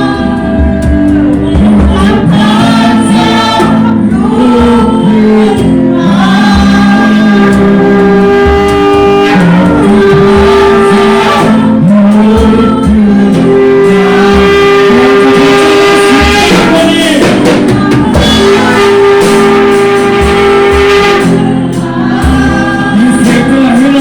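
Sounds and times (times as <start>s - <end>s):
congregation singing: 0.0s - 24.0s
worship band playing: 0.0s - 24.0s.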